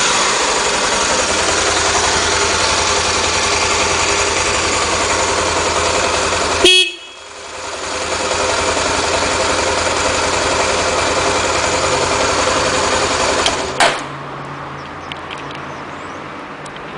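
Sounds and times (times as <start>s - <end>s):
motorcycle engine running: 0.0s - 13.9s
short horn beep: 6.6s - 7.2s.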